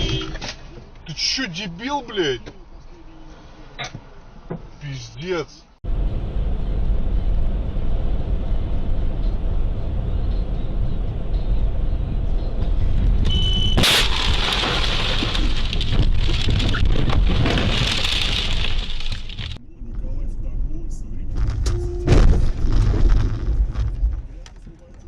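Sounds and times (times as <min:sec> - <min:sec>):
car road and engine rumble: 0:00.0 - 0:25.0
high beep: 0:13.3 - 0:13.8.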